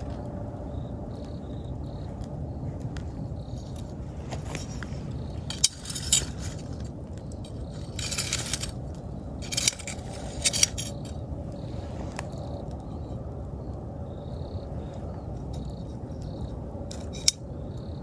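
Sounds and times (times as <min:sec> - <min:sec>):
campfire crackling and popping: 0:00.0 - 0:05.5, 0:06.7 - 0:07.8, 0:08.7 - 0:09.4, 0:11.1 - 0:18.0
fire hissing spurt: 0:08.4 - 0:12.7.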